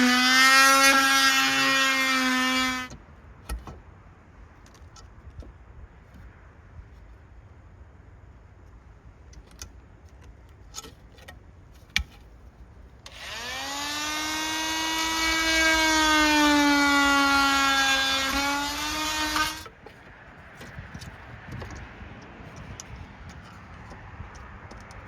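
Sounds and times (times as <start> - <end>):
power drill whining: 0.0 - 3.0, 13.1 - 19.8.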